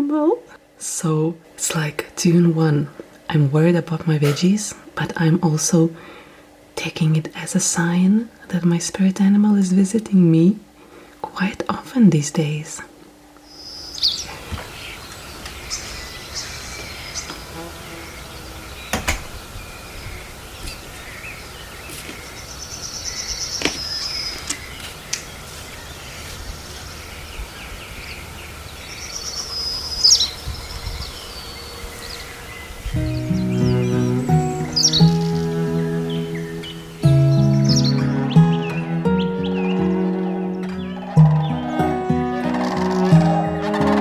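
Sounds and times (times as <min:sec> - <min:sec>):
steady background hiss: 0:00.0 - 0:40.7
birds chirping: 0:13.4 - 0:44.0.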